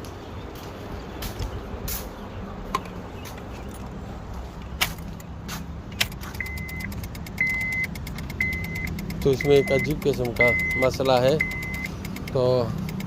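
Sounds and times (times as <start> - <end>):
connector clicks: 5.9 - 13.0
fast even ticking: 6.0 - 13.0
high electronic beep: 6.4 - 12.0.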